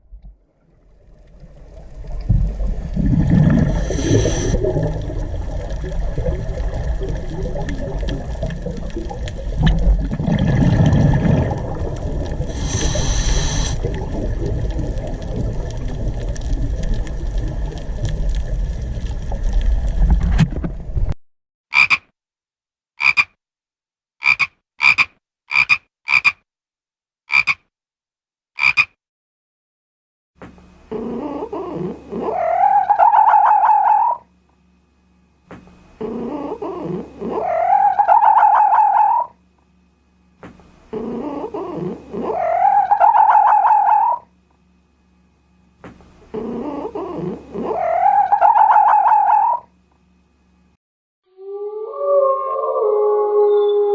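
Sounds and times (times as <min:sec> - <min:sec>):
animal calls: 0:30.9 - 0:34.3, 0:36.0 - 0:39.4, 0:40.9 - 0:44.3, 0:46.3 - 0:49.7.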